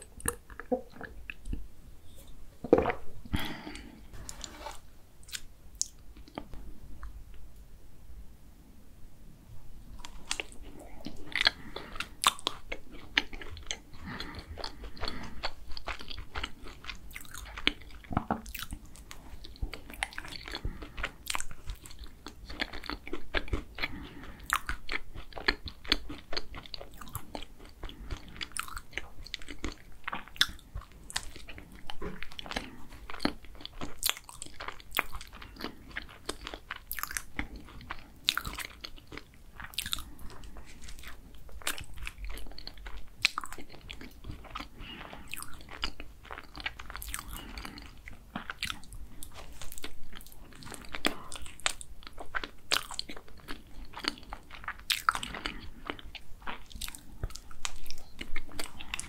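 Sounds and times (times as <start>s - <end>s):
biting and chewing: 10.0s - 59.0s.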